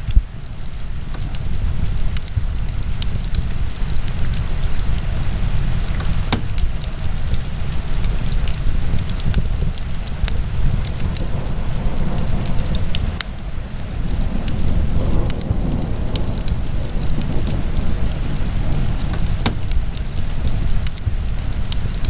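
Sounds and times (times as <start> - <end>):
fire crackling in a fireplace: 0.0 - 22.0
sharp wood pops: 5.9 - 6.9, 19.0 - 19.9.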